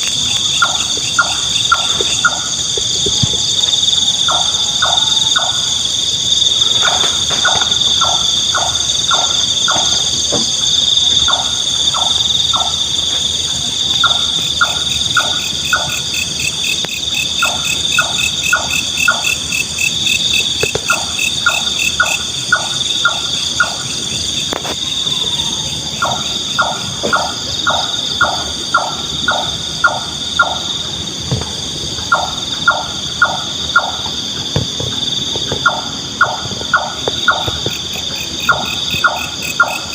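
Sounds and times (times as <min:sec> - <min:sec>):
night insects chorus: 0:00.0 - 0:39.9
nightjar calling: 0:00.2 - 0:16.3, 0:26.0 - 0:30.9, 0:35.6 - 0:39.9.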